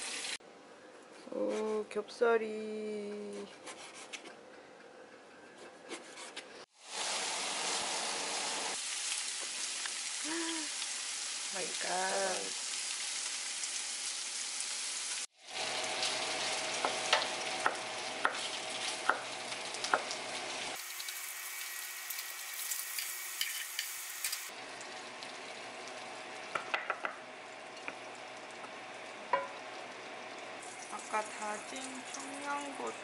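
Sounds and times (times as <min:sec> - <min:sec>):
meat sizzling in a frying pan: 0:00.0 - 0:00.4, 0:06.7 - 0:27.0, 0:27.8 - 0:32.9
knife chopping on wooden board: 0:16.8 - 0:19.3
steady hiss: 0:20.7 - 0:24.5.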